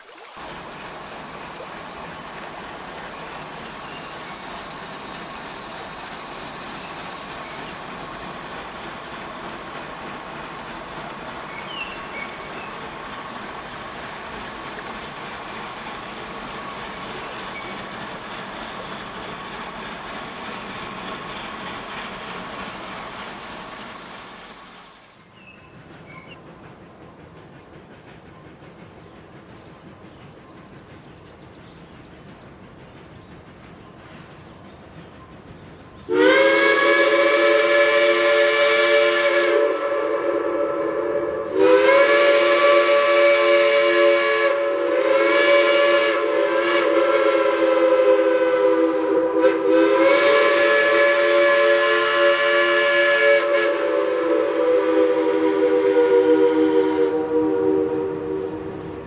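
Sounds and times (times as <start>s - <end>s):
steam locomotive chime whistle: 11.4s - 13.7s, 33.8s - 59.0s.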